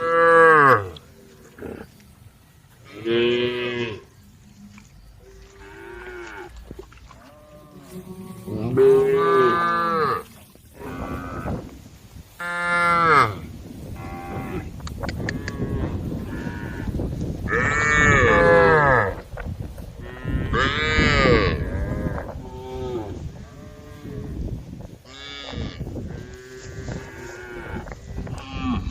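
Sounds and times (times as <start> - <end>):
cows mooing: 2.8 - 11.7, 14.0 - 19.2, 20.0 - 24.4, 25.1 - 28.9.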